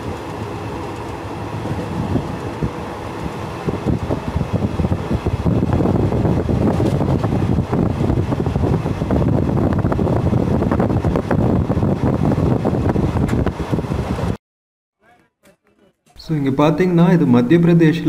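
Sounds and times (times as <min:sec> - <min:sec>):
train wheels rumbling and clattering: 0:00.0 - 0:14.4.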